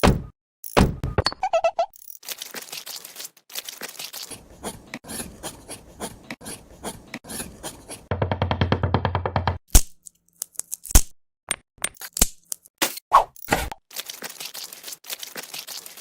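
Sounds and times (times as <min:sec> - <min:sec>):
scraping and rasping strokes: 0:04.6 - 0:08.1.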